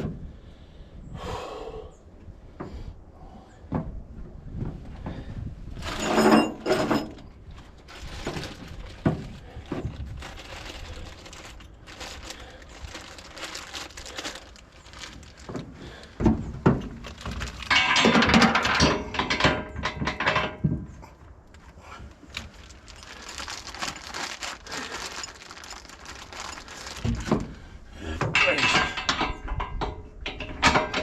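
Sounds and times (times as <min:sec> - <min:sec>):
scraping and rustling: 0:05.8 - 0:19.4, 0:20.0 - 0:27.7
knocks and clunks on metal: 0:16.2 - 0:20.9, 0:28.2 - 0:31.0.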